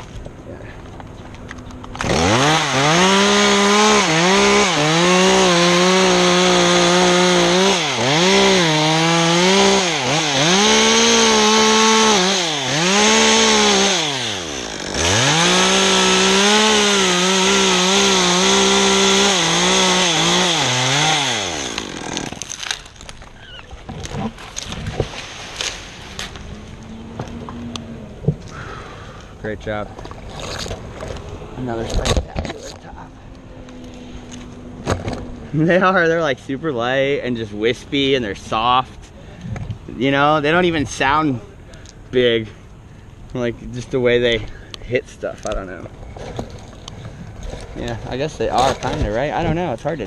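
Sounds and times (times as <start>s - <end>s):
chainsaw cutting through trunk: 1.9s - 23.2s.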